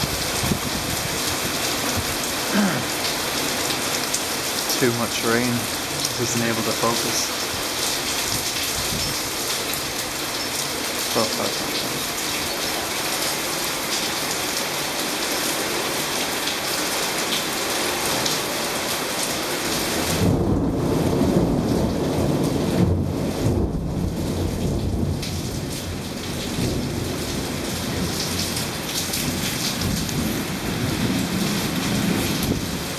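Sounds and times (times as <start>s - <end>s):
torrential rain hissing: 0.0s - 32.9s
thunder rumbling: 20.1s - 28.2s.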